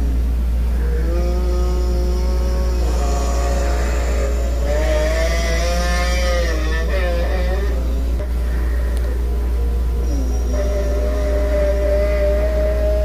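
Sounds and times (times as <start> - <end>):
steady low hum: 0.0 - 13.0
wavering moaning tone: 0.0 - 13.0.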